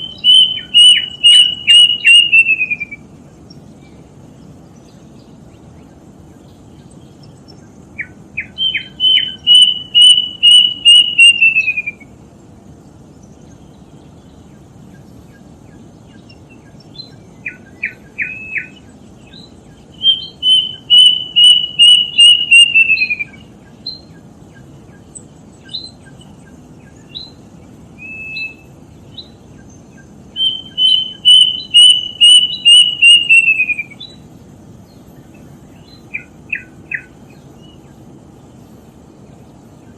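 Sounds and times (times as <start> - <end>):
cuckoo whistled song: 0.0 - 3.1, 8.0 - 12.2, 16.1 - 24.6, 25.6 - 27.4, 28.0 - 34.2, 35.8 - 37.8
bird chirps: 0.0 - 12.2, 12.8 - 39.9
low background noise: 0.0 - 39.9.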